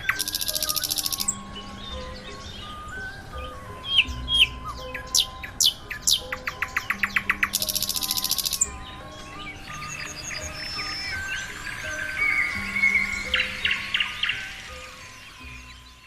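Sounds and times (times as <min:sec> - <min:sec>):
fast clicking bird trill: 0:00.0 - 0:01.4, 0:05.0 - 0:08.7
birds chirping and calling: 0:00.0 - 0:16.0
buzzing bird trill: 0:00.0 - 0:16.0.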